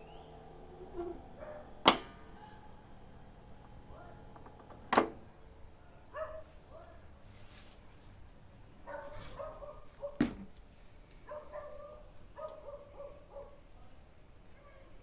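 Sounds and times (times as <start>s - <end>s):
dog barking: 0.2s - 4.9s, 6.1s - 7.0s, 8.8s - 10.2s, 11.3s - 13.6s.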